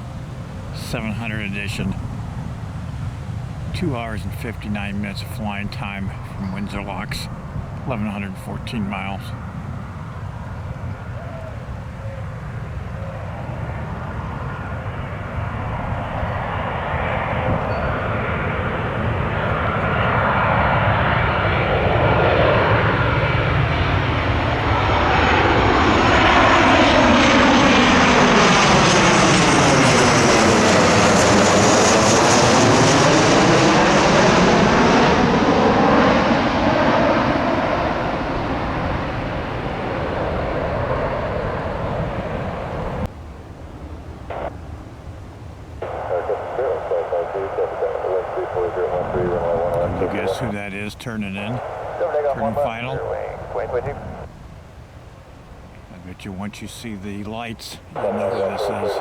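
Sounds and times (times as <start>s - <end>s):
jet engines roaring: 0.0s - 59.0s
jet whoosh passing by: 12.2s - 43.1s, 45.8s - 54.3s.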